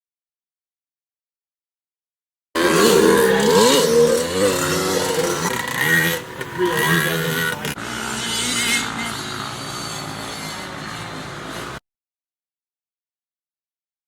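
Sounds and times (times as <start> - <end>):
motocross bike engines revving: 2.6 - 11.8.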